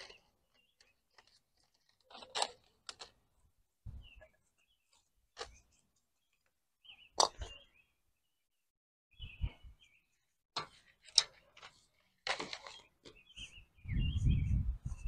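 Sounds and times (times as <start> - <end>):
bird chirps: 3.9 - 10.4, 12.6 - 15.0.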